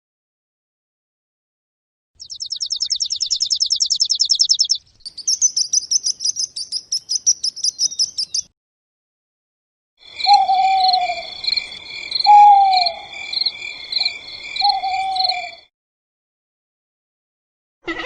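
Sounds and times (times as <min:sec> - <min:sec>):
small bird singing: 0:02.2 - 0:08.5, 0:10.0 - 0:15.7.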